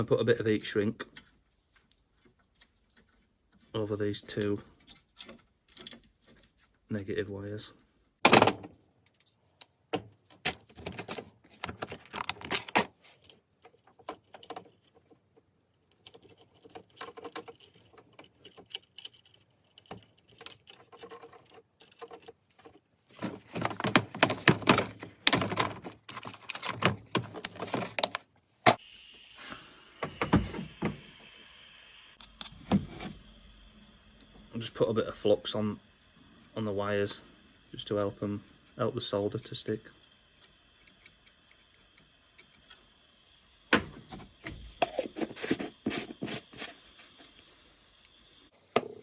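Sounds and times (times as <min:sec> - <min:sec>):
handling clicks taps and rustles: 0:01.0 - 0:07.4, 0:08.3 - 0:28.8
faint steady hiss: 0:27.2 - 0:49.0.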